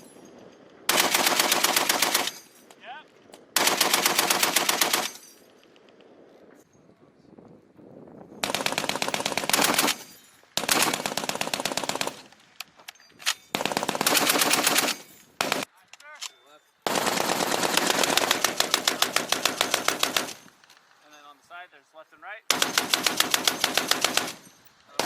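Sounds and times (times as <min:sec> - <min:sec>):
heavy machine gun bursts: 0:03.6 - 0:05.2, 0:08.4 - 0:12.3, 0:13.5 - 0:15.7, 0:16.9 - 0:20.6, 0:22.5 - 0:25.0.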